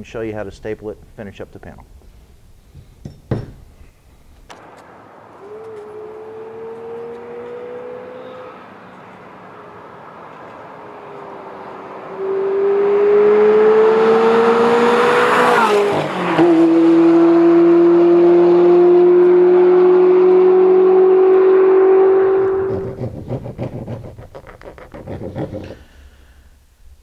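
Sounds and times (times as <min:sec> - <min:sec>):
sports car passing by: 0:04.6 - 0:23.2.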